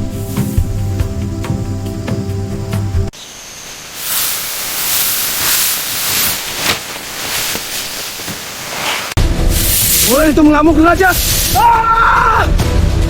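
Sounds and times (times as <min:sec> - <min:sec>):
music: 0:00.0 - 0:03.1, 0:09.2 - 0:13.0
snake hissing: 0:00.0 - 0:10.4, 0:11.0 - 0:11.6.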